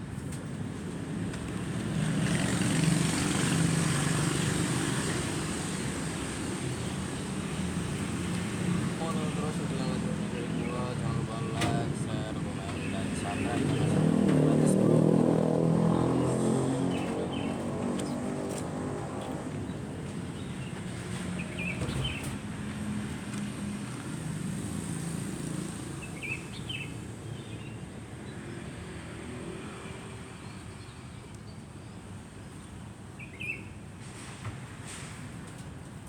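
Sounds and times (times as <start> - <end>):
vehicle engine humming: 0.2 - 26.0.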